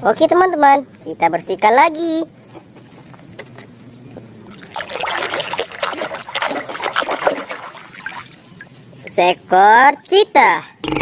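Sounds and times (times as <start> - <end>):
water splashing and dribbling: 4.5 - 8.8.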